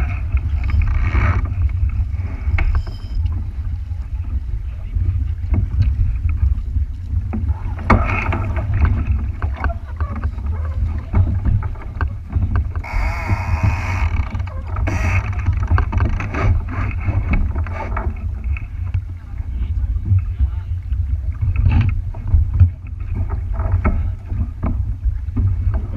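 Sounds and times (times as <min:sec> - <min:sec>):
wind buffeting microphone: 0:00.0 - 0:25.9
loud harsh sound: 0:12.8 - 0:14.3, 0:14.9 - 0:15.4.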